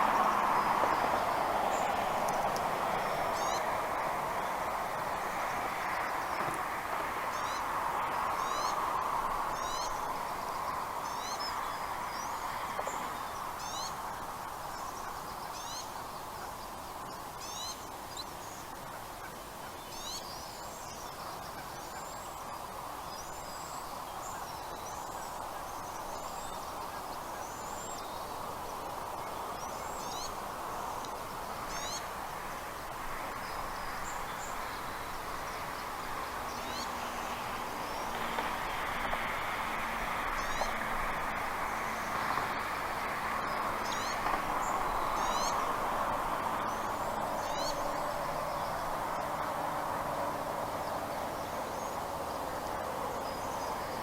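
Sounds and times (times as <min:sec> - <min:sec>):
birds chirping: 0:46.5 - 0:49.5.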